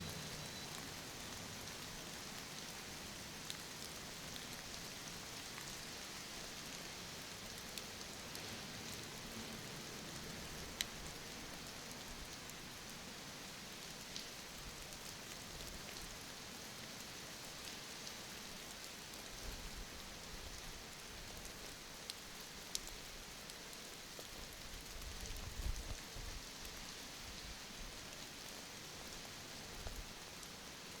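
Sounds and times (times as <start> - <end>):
raindrop ticks: 0.0 - 5.8, 10.0 - 12.6, 13.8 - 16.1, 17.0 - 26.8, 29.0 - 30.6
steady rain hiss: 0.0 - 31.0.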